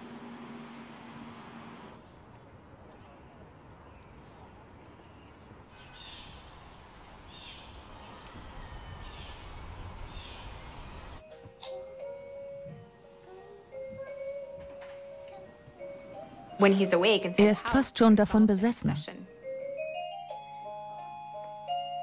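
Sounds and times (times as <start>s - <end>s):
bird calling: 7.2s - 11.2s.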